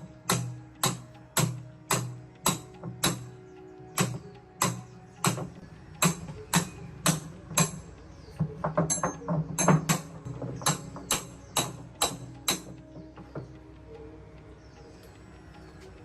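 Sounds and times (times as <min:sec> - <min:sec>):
sharp metallic strikes: 0:00.0 - 0:03.4, 0:04.0 - 0:07.9, 0:08.8 - 0:12.9.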